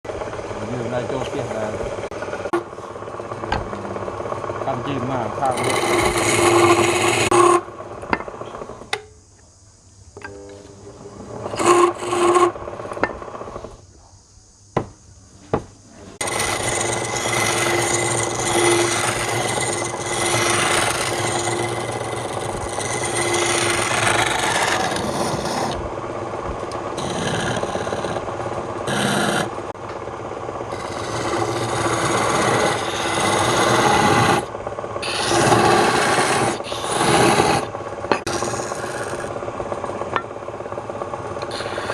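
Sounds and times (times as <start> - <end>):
tool scraping turning wood: 0.1 - 8.9, 11.0 - 13.8, 16.2 - 40.3, 41.2 - 41.9
lathe hum: 0.1 - 9.0, 10.2 - 13.7, 16.1 - 41.9.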